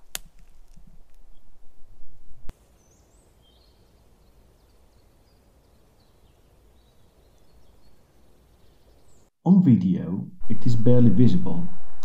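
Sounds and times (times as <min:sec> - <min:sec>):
faint birdsong: 0:02.5 - 0:09.6
loud low rumble: 0:10.4 - 0:12.0.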